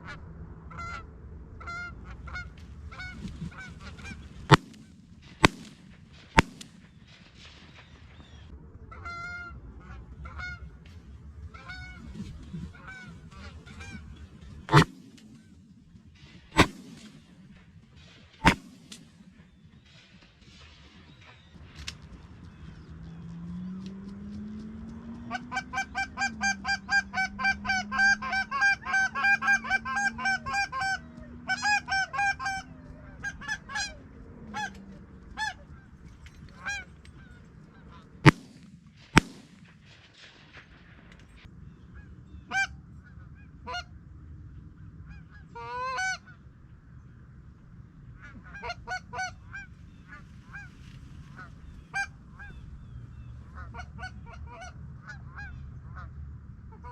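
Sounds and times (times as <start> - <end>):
geese honking: 0.0 - 7.4, 8.2 - 15.6, 16.6 - 17.6, 18.4 - 19.6, 24.5 - 39.7, 41.9 - 43.9, 45.0 - 46.4, 48.2 - 56.9
shotgun shots: 3.2 - 8.4, 13.4 - 21.2, 38.2 - 41.5.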